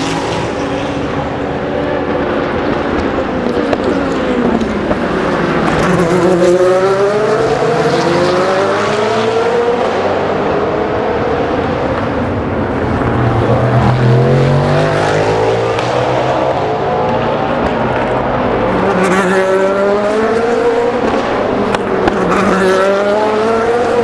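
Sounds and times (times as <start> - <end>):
deeper race car engine: 0.0 - 24.0
race car engines accelerating: 0.0 - 24.0
race car passing by: 0.0 - 24.0.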